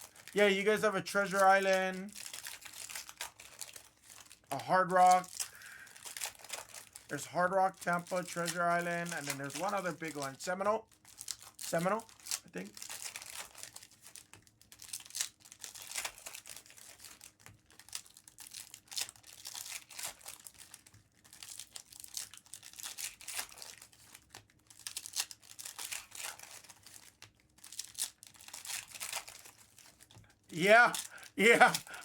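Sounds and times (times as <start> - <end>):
foil wrappers tearing and crinkling: 0.0 - 32.0.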